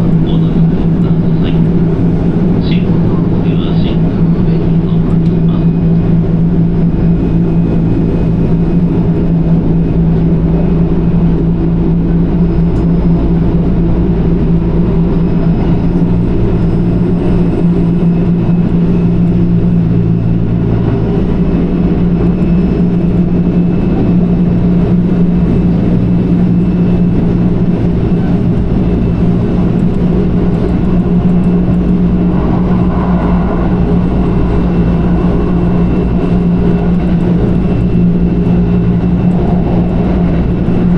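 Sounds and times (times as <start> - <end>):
even hum: 0.0 - 40.9
train wheels rumbling on rail: 0.0 - 40.9.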